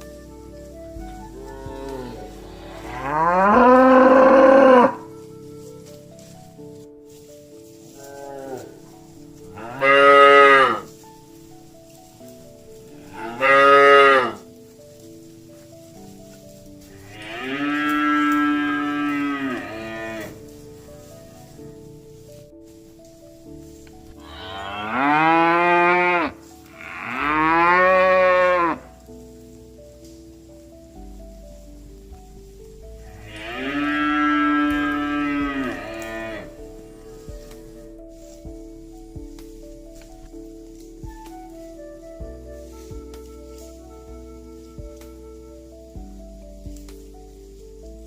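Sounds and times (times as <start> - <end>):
faint background music: 0.0 - 48.0
cattle mooing: 1.4 - 5.3, 8.0 - 10.9, 12.9 - 14.4, 17.0 - 21.8, 24.2 - 28.9, 33.1 - 37.7.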